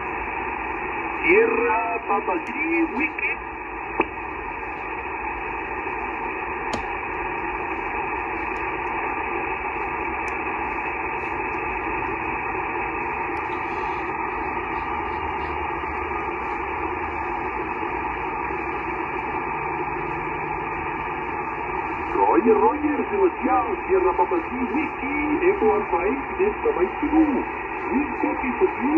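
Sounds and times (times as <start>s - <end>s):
shortwave radio static hiss: 0.0s - 28.9s.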